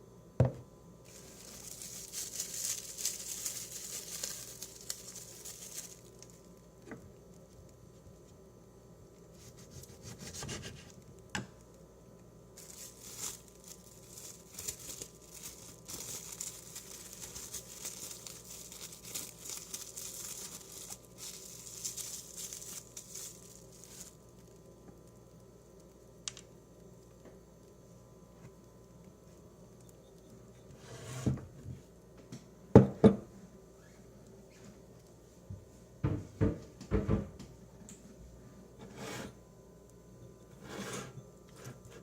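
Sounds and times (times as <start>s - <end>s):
crinkly rustling and tearing: 1.1s - 7.8s, 12.6s - 25.4s.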